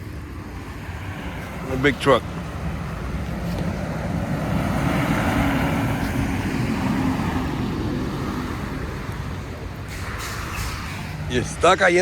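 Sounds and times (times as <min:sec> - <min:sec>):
truck engine: 0:00.0 - 0:12.0
tyres hissing: 0:05.3 - 0:12.0.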